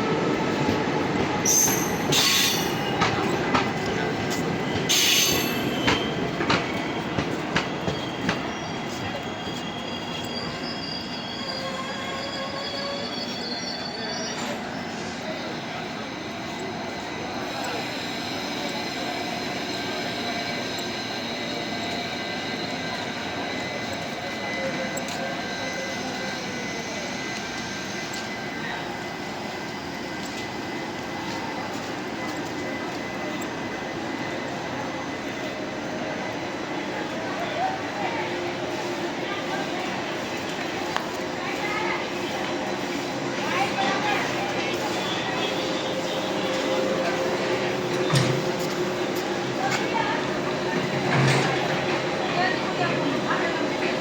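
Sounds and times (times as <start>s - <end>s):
train rumble: 0.0s - 54.0s
train wheels knocking: 1.1s - 8.5s
high-pitched wheel squeals: 1.4s - 3.4s, 4.8s - 31.4s.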